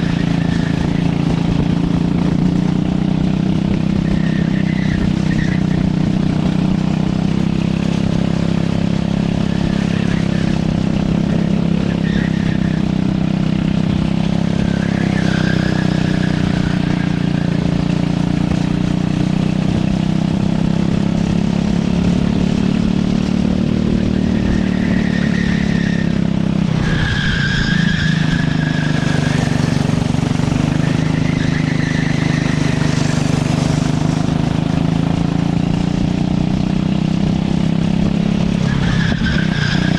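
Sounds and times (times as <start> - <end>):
tyre squeals: 0.0 - 1.5, 3.8 - 6.2, 9.3 - 18.0, 24.0 - 33.9, 38.6 - 39.9
racing kart engine: 0.0 - 39.9.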